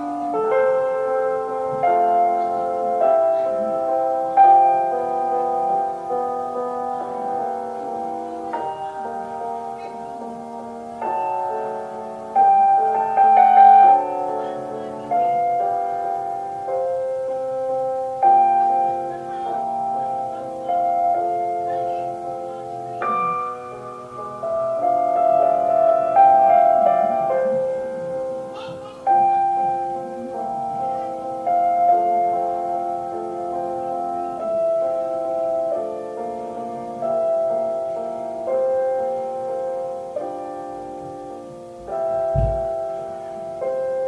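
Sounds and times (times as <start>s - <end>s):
slow classical piano chords: 0.0s - 44.0s.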